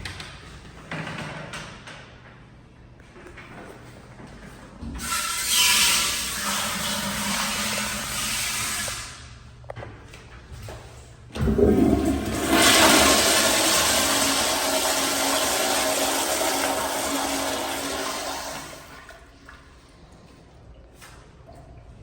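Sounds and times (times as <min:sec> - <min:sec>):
toilet water rushing: 0:05.0 - 0:09.3, 0:11.4 - 0:19.4
low thump of toilet flush: 0:11.4 - 0:19.2.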